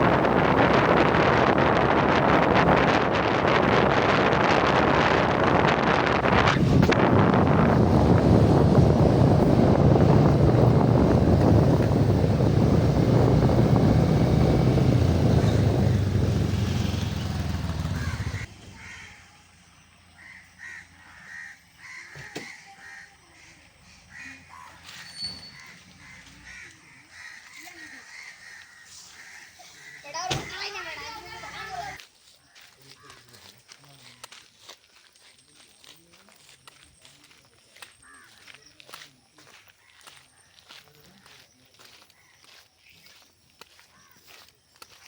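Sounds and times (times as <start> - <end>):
wind buffeting microphone: 0.0 - 18.5
crows cawing: 17.7 - 19.4, 20.1 - 25.0, 25.6 - 30.3, 32.4 - 33.4, 38.0 - 38.7, 43.7 - 44.4.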